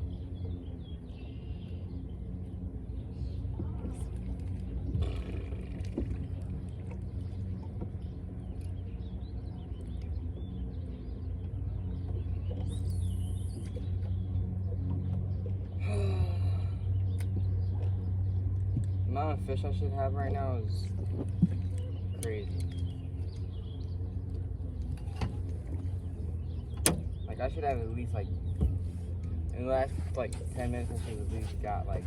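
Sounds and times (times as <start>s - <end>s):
birds chirping faintly: 0.0s - 32.0s
low motor hum: 0.0s - 32.0s.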